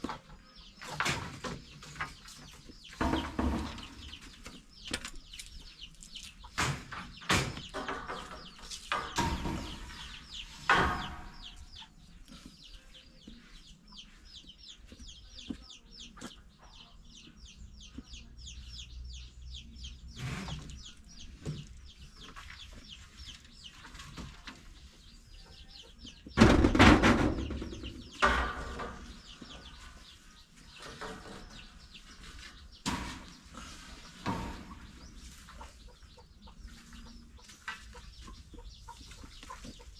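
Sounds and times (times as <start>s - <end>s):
chickens clucking: 0.0s - 39.9s
loud knocks and clatters: 0.8s - 5.0s, 6.4s - 11.8s, 26.2s - 30.0s.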